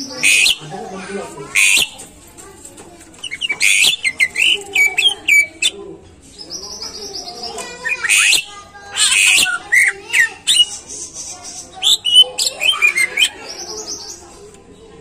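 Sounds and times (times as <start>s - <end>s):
bird harsh rasping calls: 0.0s - 2.1s, 3.2s - 14.3s
bird rapid trill: 0.1s - 0.7s, 1.5s - 2.0s, 3.2s - 5.8s, 6.8s - 14.2s
bird singing whistled notes: 0.2s - 0.6s, 1.6s - 2.0s, 3.2s - 5.8s, 8.0s - 9.9s.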